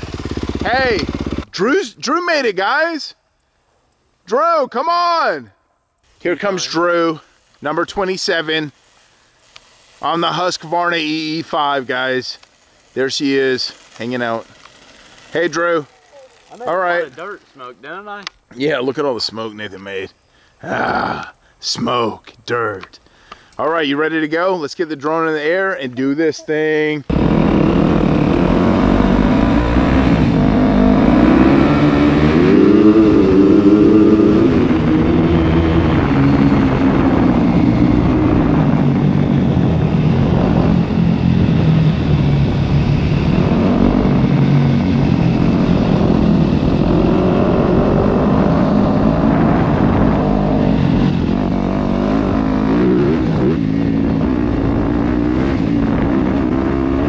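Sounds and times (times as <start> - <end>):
dirt bike engine revving: 0.0 - 1.8, 27.1 - 57.0.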